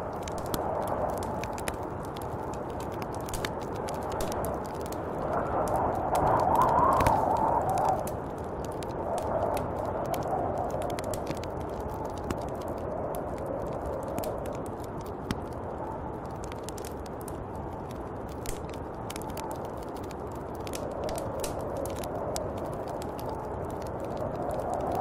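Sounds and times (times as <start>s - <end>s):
small crackling clicks: 0.0s - 25.0s
snowstorm wind blowing: 0.0s - 25.0s.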